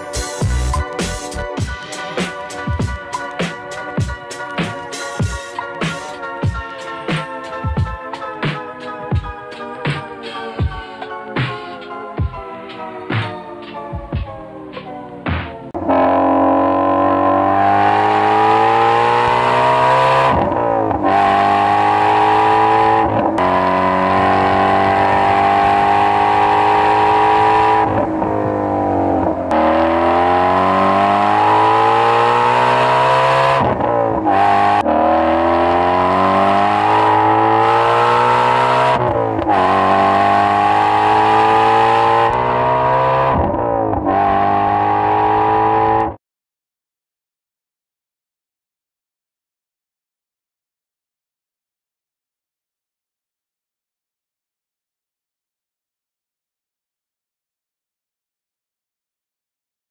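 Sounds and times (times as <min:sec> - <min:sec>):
car engine accelerating hard: 0:15.8 - 0:46.2.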